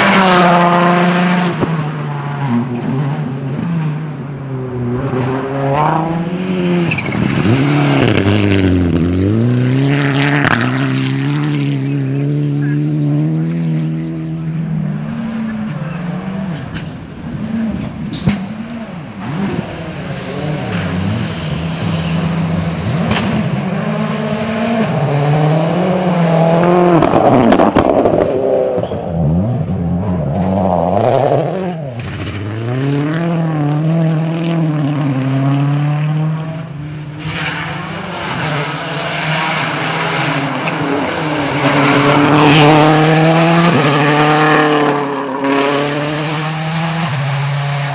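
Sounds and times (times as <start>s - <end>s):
rally car engines revving: 0.0s - 47.9s.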